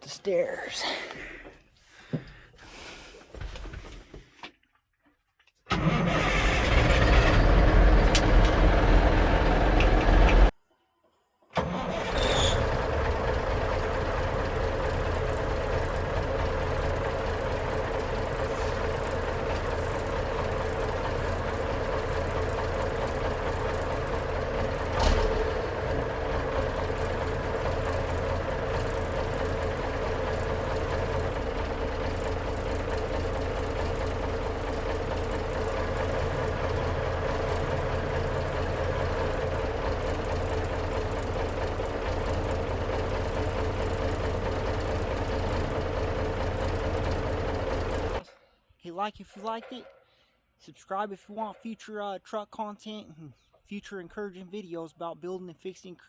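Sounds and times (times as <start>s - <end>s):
diesel truck engine idling: 5.7s - 10.5s, 11.6s - 48.2s.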